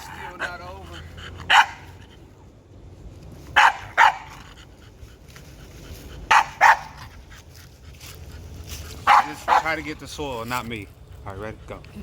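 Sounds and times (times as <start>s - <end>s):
dog barking: 1.5s - 2.0s, 3.6s - 4.4s, 6.3s - 7.0s, 9.0s - 9.8s.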